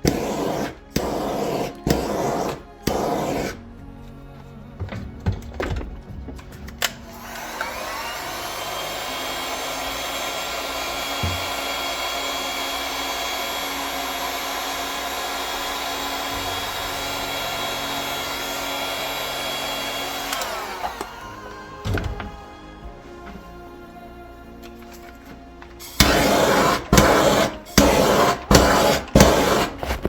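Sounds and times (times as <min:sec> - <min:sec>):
hot-air blower whining: 0:00.0 - 0:03.6, 0:06.4 - 0:30.0.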